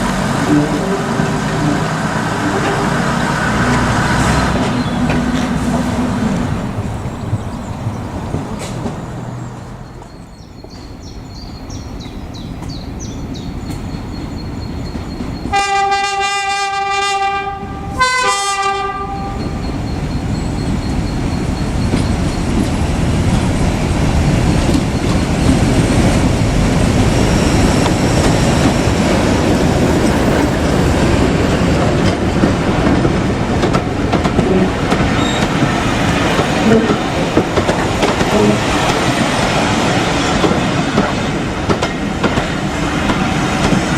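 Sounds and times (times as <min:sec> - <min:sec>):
train rumble and wheel clatter: 0:00.0 - 0:43.9
train horn blasts: 0:00.3 - 0:04.4, 0:15.5 - 0:19.6, 0:38.2 - 0:38.8.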